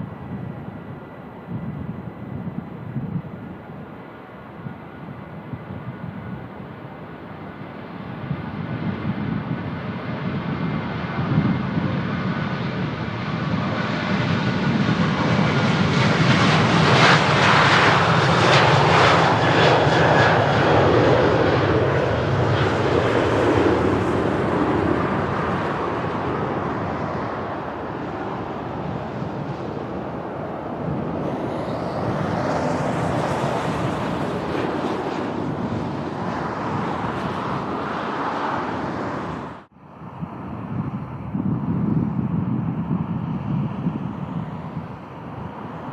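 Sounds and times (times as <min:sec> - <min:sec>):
jet engines roaring: 0:00.0 - 0:45.9.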